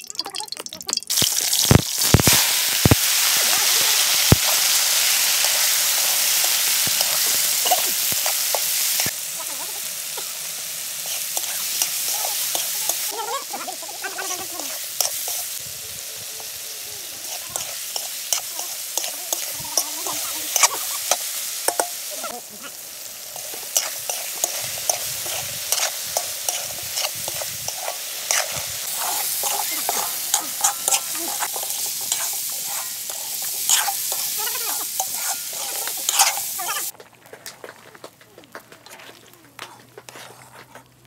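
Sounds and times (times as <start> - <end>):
chicken sizzling in oil: 0.0 - 36.9
spoon clicking and scraping pot: 17.3 - 22.1, 23.4 - 34.4, 35.0 - 36.5.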